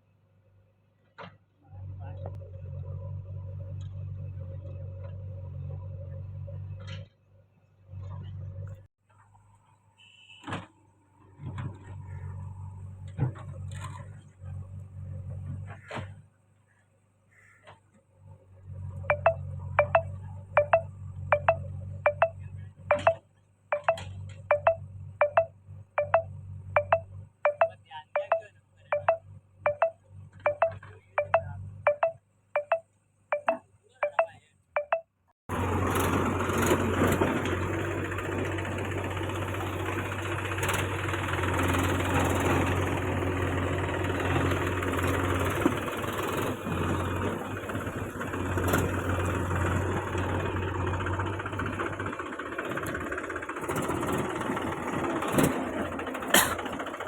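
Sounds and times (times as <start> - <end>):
tractor diesel engine running: 18.3 - 33.5, 35.5 - 57.0
short pitched pings: 19.1 - 23.2, 23.8 - 35.1.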